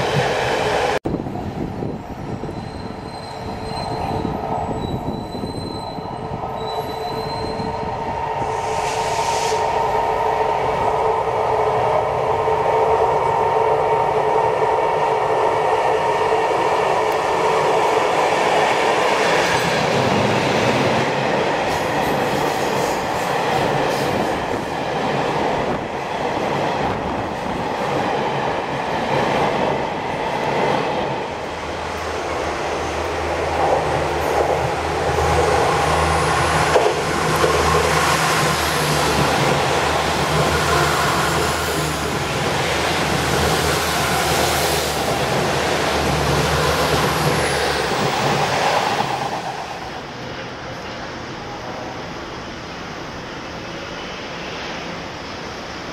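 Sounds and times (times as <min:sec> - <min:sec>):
train wheels rumbling on track: 0:00.0 - 0:55.9
high squeal: 0:02.4 - 0:10.0.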